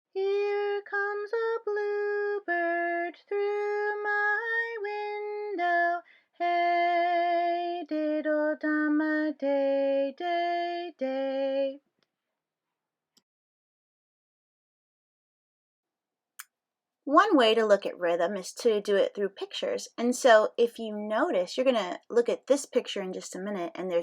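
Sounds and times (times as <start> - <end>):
woman singing: 0.1 - 11.8, 17.1 - 24.0.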